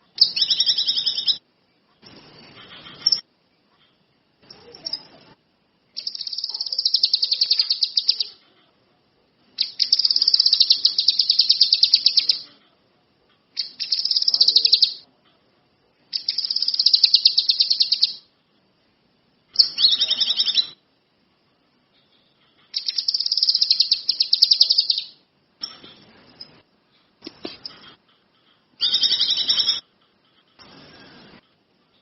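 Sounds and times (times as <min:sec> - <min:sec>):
songbird high fast trill: 0:00.2 - 0:01.4, 0:06.0 - 0:08.4, 0:09.6 - 0:12.4, 0:16.2 - 0:18.3, 0:22.8 - 0:25.2, 0:28.8 - 0:29.8.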